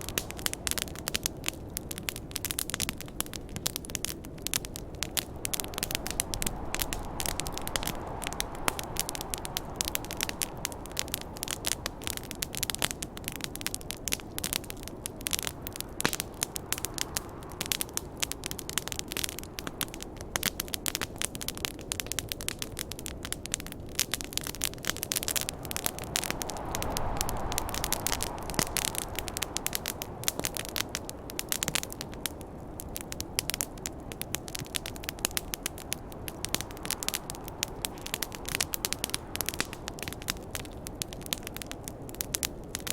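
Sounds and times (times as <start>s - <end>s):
wood fire crackling and popping: 0.0s - 42.9s
snowstorm wind rushing: 3.3s - 20.4s, 23.7s - 42.3s.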